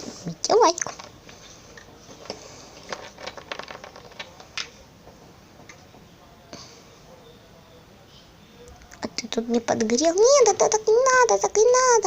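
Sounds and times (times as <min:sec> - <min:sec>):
plastic toys clicking: 0:02.8 - 0:04.8.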